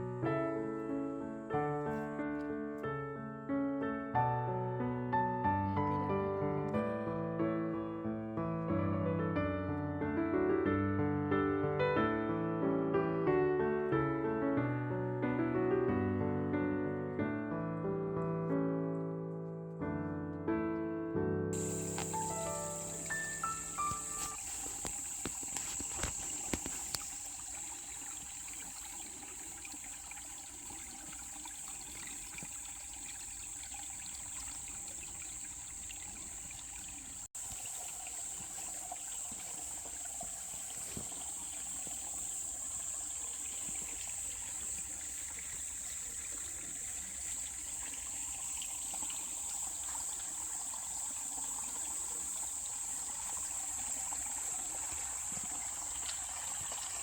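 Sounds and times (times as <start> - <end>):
water trickling: 21.6 - 57.0.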